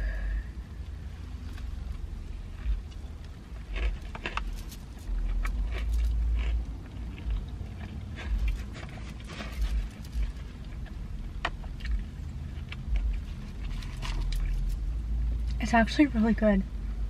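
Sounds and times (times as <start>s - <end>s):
person chewing food: 1.5s - 15.6s.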